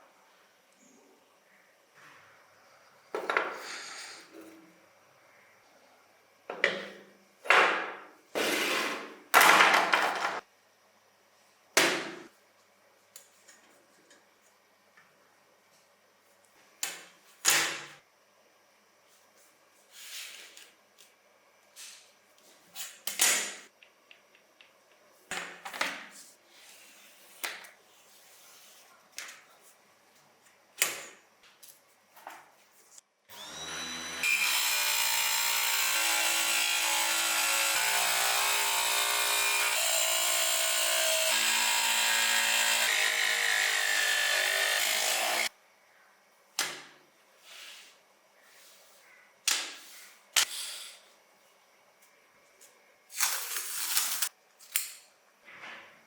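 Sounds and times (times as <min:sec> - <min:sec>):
small power tool spinning: 0:33.3 - 0:45.5.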